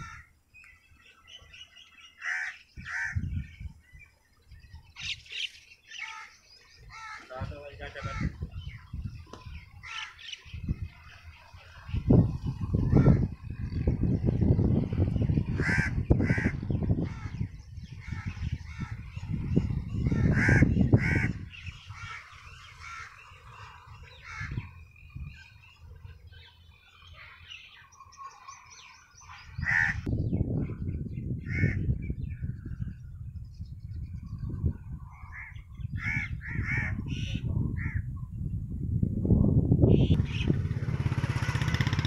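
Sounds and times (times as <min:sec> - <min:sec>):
crow calls: 0:00.0 - 0:00.3, 0:02.0 - 0:03.3, 0:05.4 - 0:08.7, 0:09.8 - 0:10.4, 0:12.8 - 0:13.4, 0:15.5 - 0:19.2, 0:19.9 - 0:25.0, 0:27.0 - 0:30.1, 0:31.4 - 0:31.9, 0:35.1 - 0:38.1.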